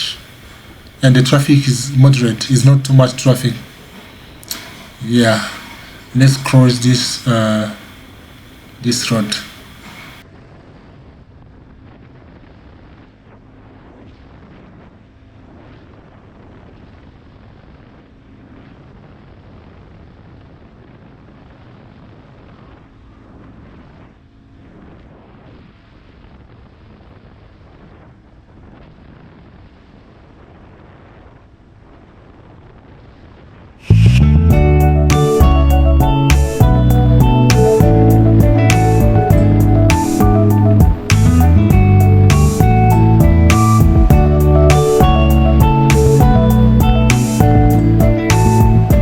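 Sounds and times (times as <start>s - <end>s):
motorcycle engine drone: 33.8s - 49.0s
loud guitar music: 33.9s - 49.0s.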